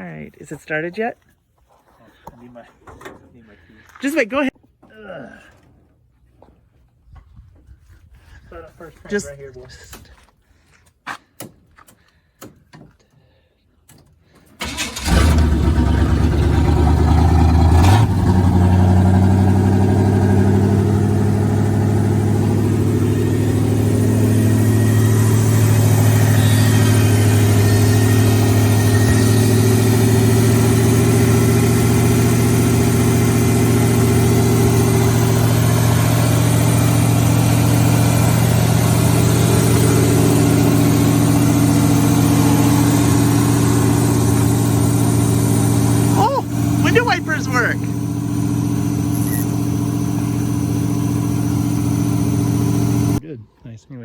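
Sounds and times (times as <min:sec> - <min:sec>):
engine idling high: 0:14.6 - 0:53.2.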